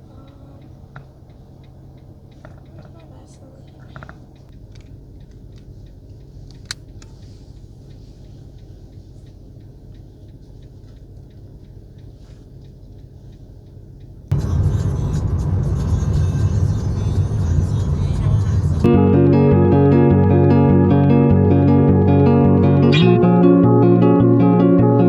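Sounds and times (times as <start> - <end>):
car cabin road rumble: 0.0 - 5.8, 14.3 - 18.9
loud music: 14.3 - 25.0.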